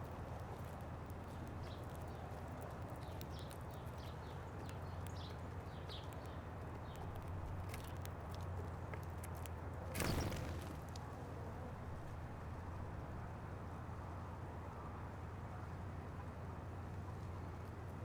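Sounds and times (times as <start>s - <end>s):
small birds chirping: 0.0s - 9.1s, 9.9s - 11.1s.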